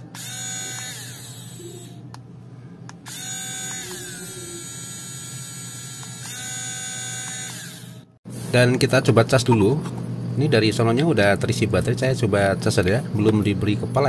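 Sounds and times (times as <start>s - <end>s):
rotary tool motor whine: 0.0s - 2.0s, 3.0s - 8.1s.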